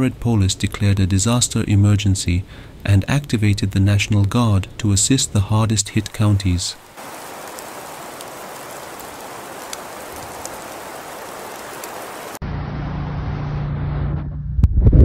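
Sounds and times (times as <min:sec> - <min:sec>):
rain hissing on a surface: 0:00.4 - 0:12.4.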